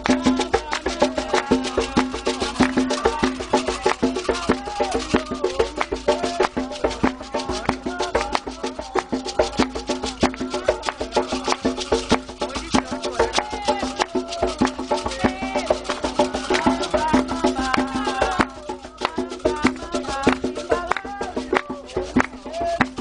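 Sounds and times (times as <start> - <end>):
bell beating a rhythm: 0.0 - 23.0
hand drums beating: 0.0 - 23.0
voices singing: 0.0 - 23.0.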